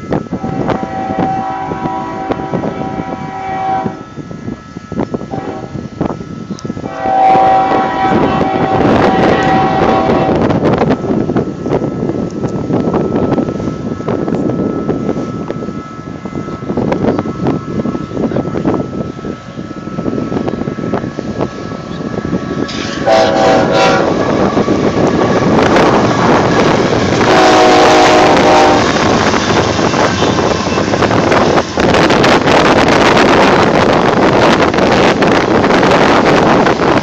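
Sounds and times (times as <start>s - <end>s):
freight train rolling past: 0.0s - 37.0s
locomotive air horn: 0.3s - 4.2s, 5.3s - 5.9s, 6.8s - 10.7s, 22.6s - 33.4s.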